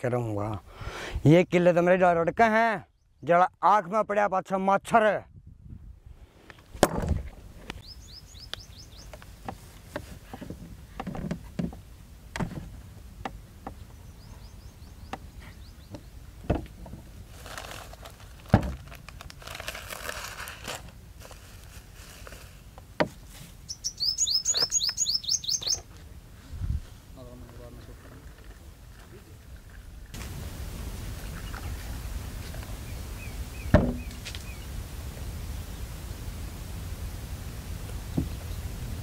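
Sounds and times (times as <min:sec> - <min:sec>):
small bird chirping: 0:07.8 - 0:09.5, 0:13.7 - 0:16.2, 0:23.6 - 0:25.9
rustling: 0:16.7 - 0:23.7.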